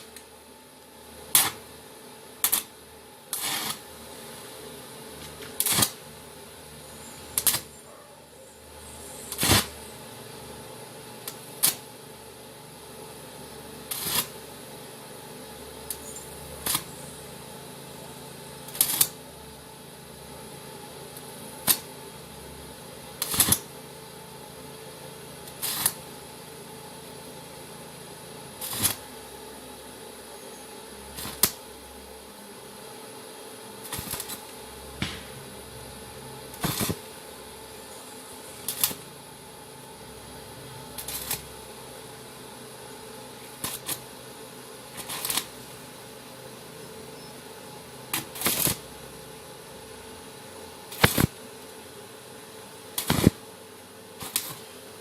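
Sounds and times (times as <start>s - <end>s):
steady welder hum: 0.0s - 55.0s
welding arc crackling bursts: 1.3s - 1.7s, 2.4s - 3.9s, 5.3s - 6.1s, 7.3s - 7.7s, 9.3s - 9.8s, 11.2s - 11.9s, 13.8s - 14.5s, 15.9s - 16.9s, 18.6s - 19.2s, 21.6s - 22.0s, 23.2s - 23.8s, 25.4s - 26.1s, 28.6s - 29.1s, 31.1s - 31.7s, 33.8s - 37.3s, 38.6s - 39.1s, 40.8s - 41.7s, 43.4s - 44.1s, 44.9s - 45.7s, 48.1s - 49.0s, 50.9s - 51.4s, 53.0s - 53.5s, 54.2s - 54.8s.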